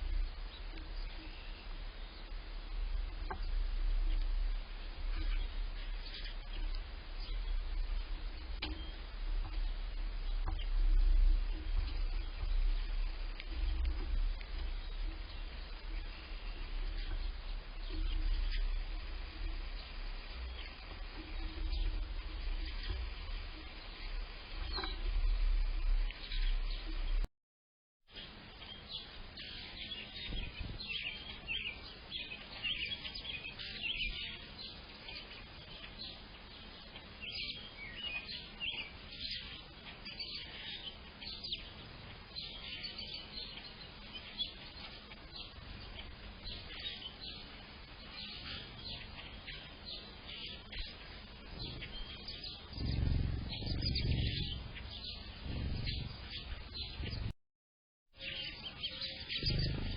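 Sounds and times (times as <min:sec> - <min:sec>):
low rumbles: 0:00.0 - 0:27.3, 0:50.6 - 0:57.4
songbirds chirping and singing: 0:00.0 - 0:27.3, 0:28.1 - 0:57.3, 0:58.2 - 0:59.9.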